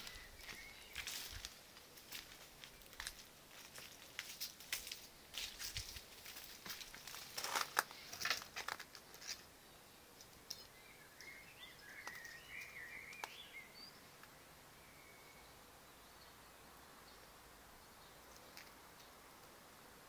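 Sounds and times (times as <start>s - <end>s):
bird singing warbling phrase: 10.8s - 14.0s.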